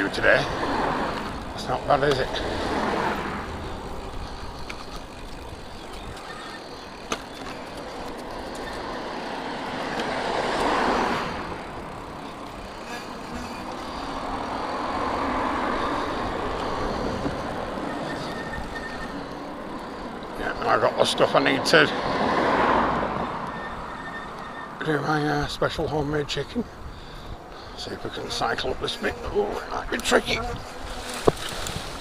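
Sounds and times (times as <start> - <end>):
road traffic rushing: 0.0 - 32.0
vehicle passing: 0.0 - 32.0.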